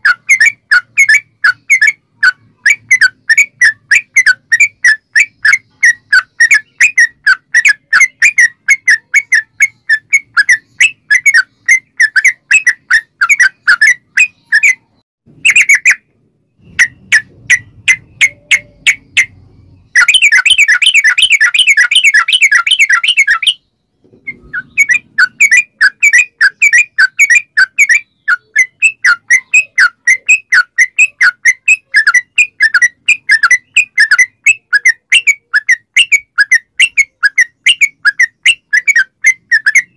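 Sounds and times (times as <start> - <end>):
bird chattering calls: 16.6 - 23.6, 24.2 - 39.9.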